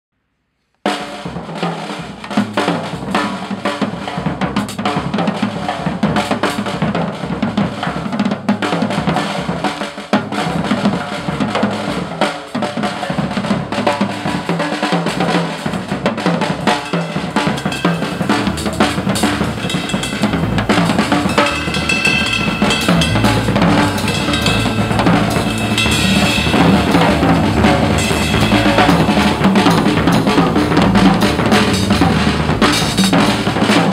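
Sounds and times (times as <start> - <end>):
drum kit playing: 0.9 - 33.9
backing track with bass guitar: 17.2 - 33.9.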